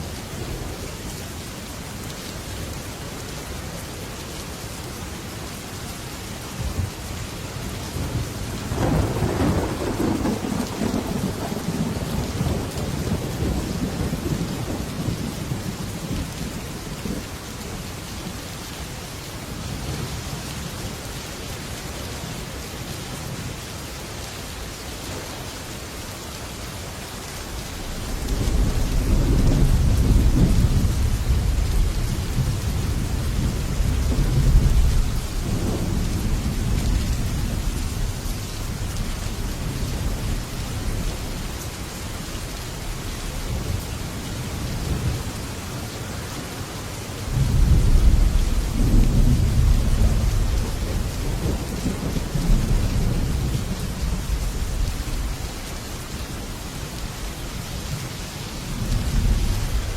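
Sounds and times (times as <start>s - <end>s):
heavy rain on metal roof: 0.0s - 59.9s
thunder rolling: 8.6s - 15.2s, 28.0s - 37.6s.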